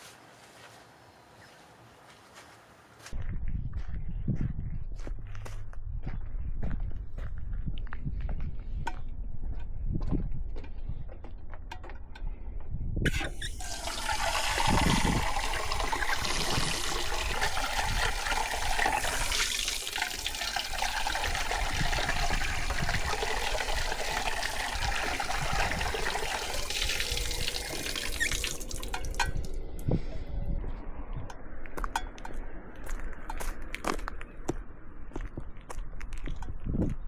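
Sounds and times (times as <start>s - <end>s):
water pouring in a stream: 13.1s - 30.2s.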